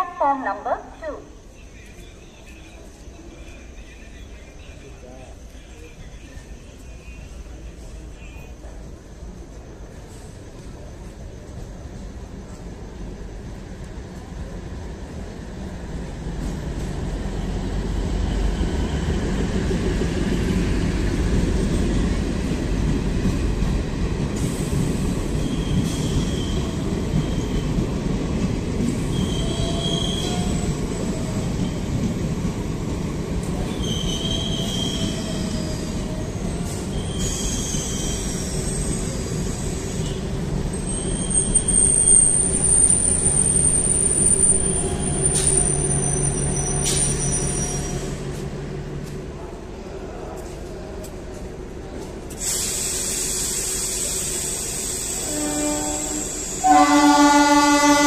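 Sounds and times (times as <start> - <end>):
train wheels rumbling on rails: 1.5 - 58.0
long high brake squeal: 25.3 - 27.6, 29.0 - 31.8, 33.7 - 48.2, 52.4 - 58.0
metallic wheel squeals: 36.9 - 39.2, 40.8 - 48.2.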